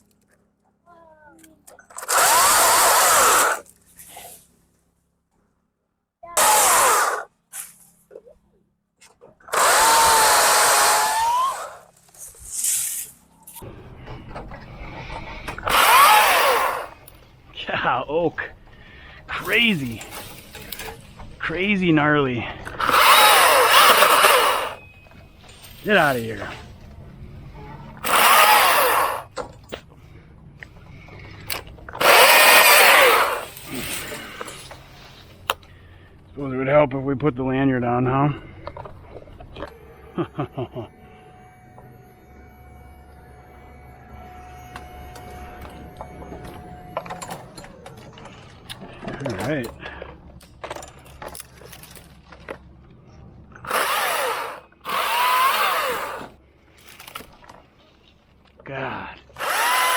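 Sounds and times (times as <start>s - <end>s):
chainsaw motor whine: 1.9s - 3.8s, 6.4s - 7.3s, 9.4s - 12.0s, 14.3s - 17.1s, 22.5s - 25.2s, 28.0s - 29.4s, 31.4s - 34.7s, 39.6s - 50.0s, 53.6s - 57.3s, 59.3s - 59.9s.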